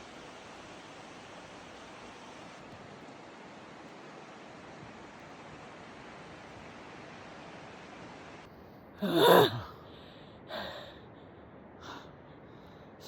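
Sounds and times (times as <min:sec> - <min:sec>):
person sighing with exertion: 0:09.0 - 0:09.8
soft breath: 0:09.6 - 0:13.0.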